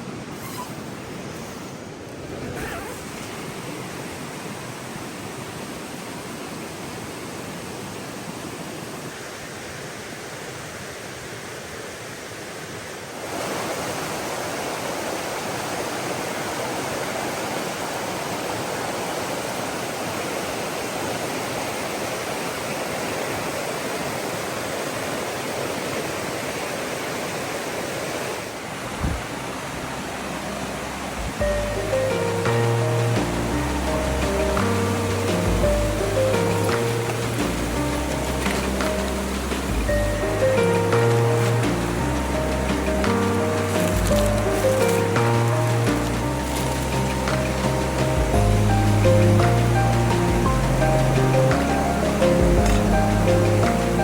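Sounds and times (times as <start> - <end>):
river water rushing: 0.0 - 54.0
low thumps: 31.1 - 54.0.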